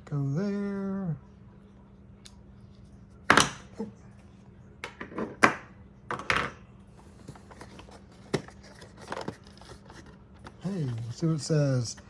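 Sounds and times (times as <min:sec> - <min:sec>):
cardboard and plastic scraping: 0:07.3 - 0:11.4.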